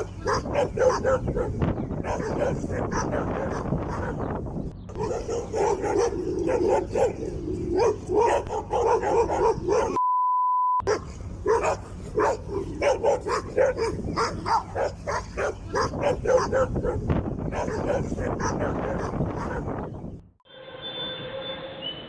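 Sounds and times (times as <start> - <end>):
dog barking and yipping: 0.0 - 4.3, 4.9 - 10.0, 10.8 - 19.9
one-note bleep: 10.0 - 10.8.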